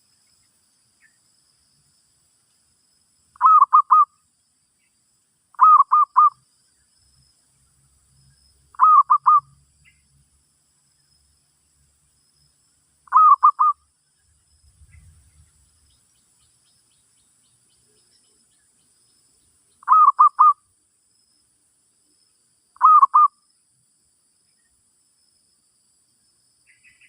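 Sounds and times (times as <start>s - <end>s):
dove cooing: 3.4s - 4.1s, 5.6s - 6.3s, 8.8s - 9.4s, 13.1s - 13.8s, 19.9s - 20.6s, 22.8s - 23.3s.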